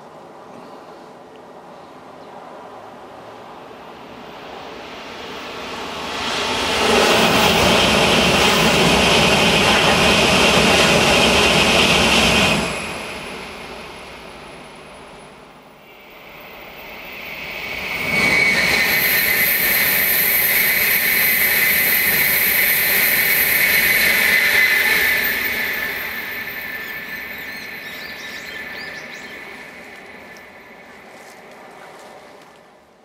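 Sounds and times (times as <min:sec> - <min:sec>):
bullet train rushing past: 0:01.5 - 0:33.0
high whine: 0:03.9 - 0:32.4.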